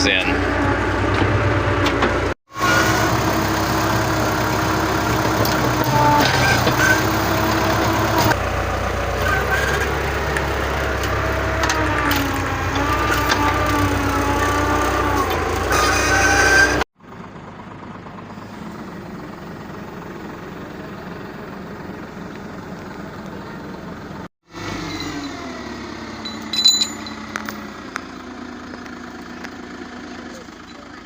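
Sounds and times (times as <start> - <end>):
sharp metallic clinks: 24.7 - 27.7.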